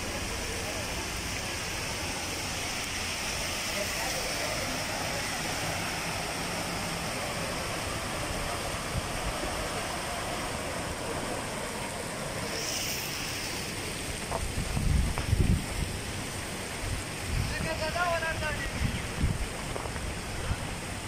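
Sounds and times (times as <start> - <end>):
rain and floodwater rushing: 0.0 - 21.0
wind buffeting microphone: 14.0 - 21.0.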